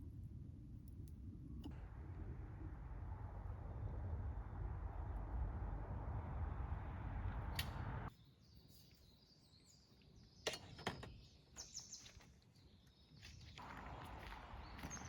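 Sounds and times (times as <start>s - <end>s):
small birds chirping: 8.1s - 15.0s.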